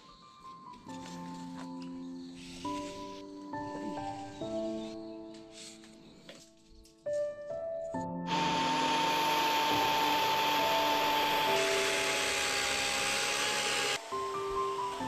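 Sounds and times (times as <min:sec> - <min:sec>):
background music: 0:00.0 - 0:15.0
power tool motor whine: 0:08.3 - 0:15.0.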